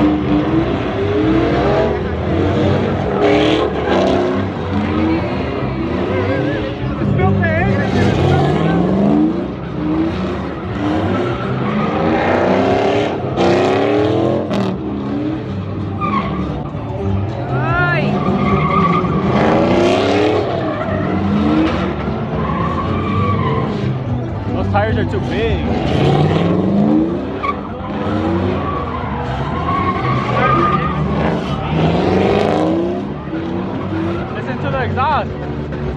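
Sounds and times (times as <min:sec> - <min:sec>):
tires squealing: 0:00.0 - 0:35.9
truck engine accelerating hard: 0:00.0 - 0:35.9.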